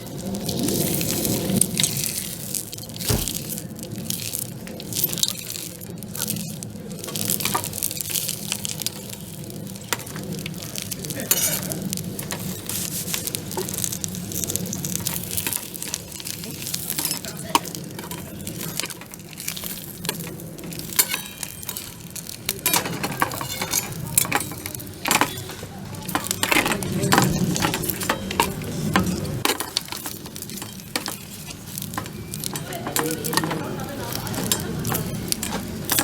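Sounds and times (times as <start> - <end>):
food sizzling in a frying pan: 0.0 - 36.0
utensil clinking against pan: 22.6 - 36.0.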